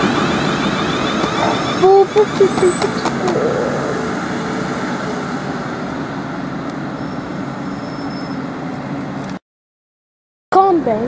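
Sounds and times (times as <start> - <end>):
train rumbling on rails: 0.0 - 9.4
faint wheel squeals: 7.0 - 8.5.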